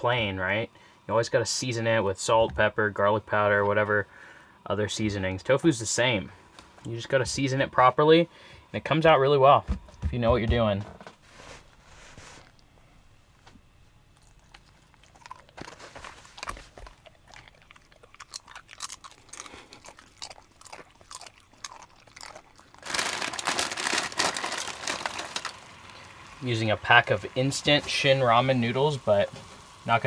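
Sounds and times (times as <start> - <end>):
crackling and rustling: 13.4 - 18.0, 22.2 - 30.0
food prep clicks and crunches: 15.2 - 28.1.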